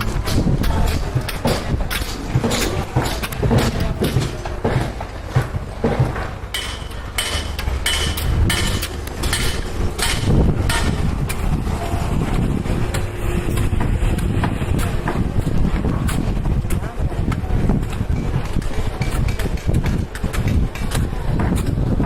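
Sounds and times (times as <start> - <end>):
hammer blows ringing on metal: 0.0 - 11.5
steady low rumble: 0.0 - 22.0.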